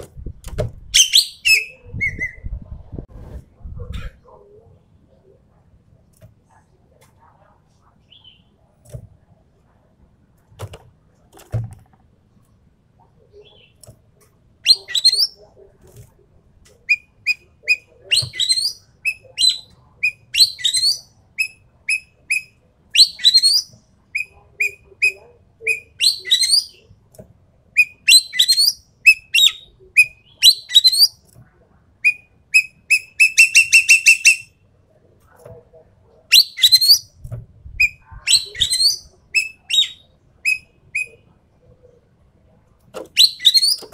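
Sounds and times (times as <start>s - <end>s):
magpie calling: 27.8s - 31.1s, 32.0s - 34.5s, 43.2s - 43.9s.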